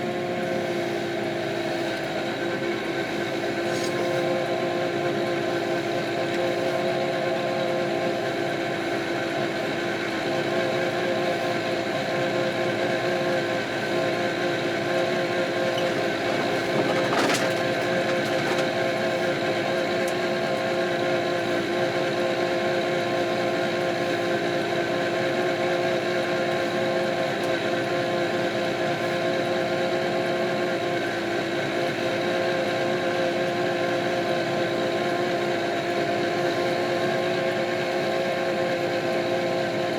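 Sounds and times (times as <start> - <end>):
diesel tractor engine droning: 11.8 - 20.4.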